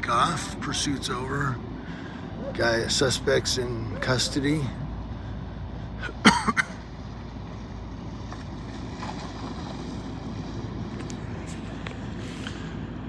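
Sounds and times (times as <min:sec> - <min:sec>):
vehicles idling: 0:00.0 - 0:13.0
person coughing: 0:06.0 - 0:06.8.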